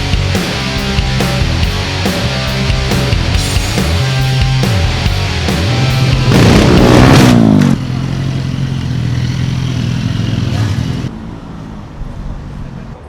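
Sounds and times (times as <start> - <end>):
rock music: 0.0 - 11.1
motorcycle engine revving: 1.0 - 11.2.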